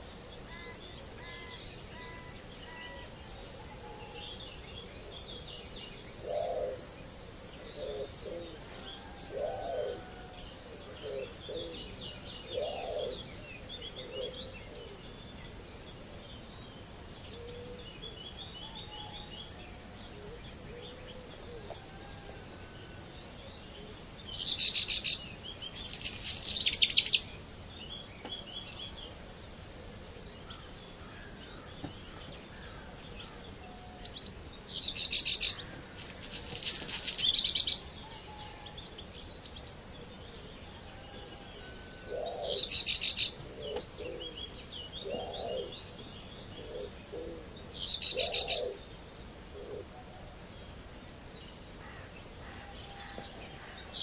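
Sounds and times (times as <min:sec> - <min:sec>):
faint bird calls: 0:00.0 - 0:15.2, 0:29.8 - 0:39.1, 0:39.9 - 0:48.9, 0:51.8 - 0:54.0.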